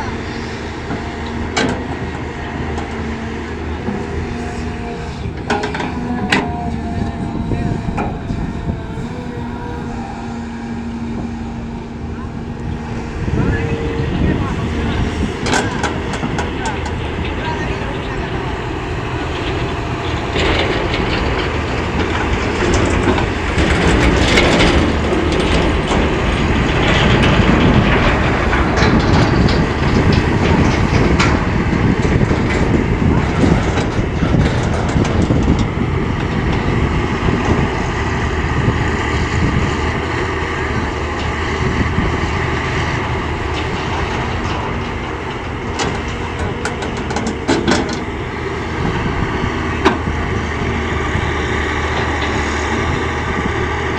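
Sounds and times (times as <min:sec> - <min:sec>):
excavator diesel engine running hard: 0:00.0 - 0:53.9.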